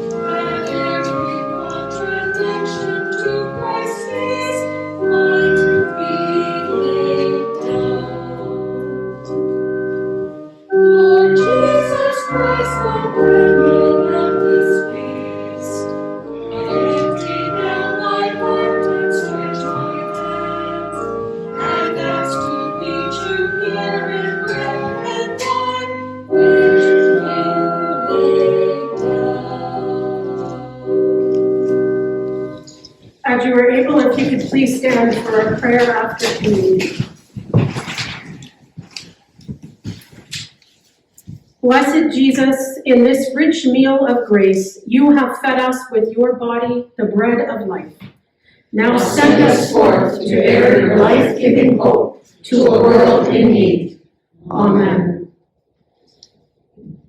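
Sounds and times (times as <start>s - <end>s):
voices singing a hymn: 0.0s - 9.3s, 10.9s - 36.9s, 48.8s - 55.2s
organ: 0.0s - 40.3s, 48.9s - 53.8s.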